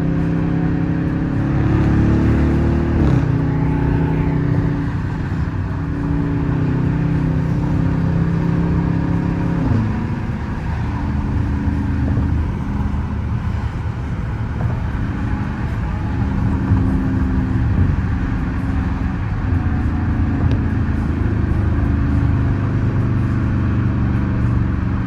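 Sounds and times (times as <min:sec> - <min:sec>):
car exhaust drone from cabin: 0:00.0 - 0:25.0.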